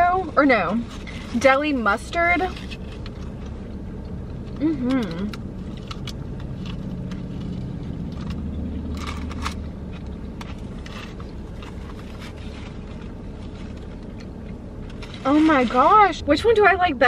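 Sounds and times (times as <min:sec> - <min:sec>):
car cabin hum: 0:00.0 - 0:17.0
close-up chewing: 0:02.6 - 0:15.1.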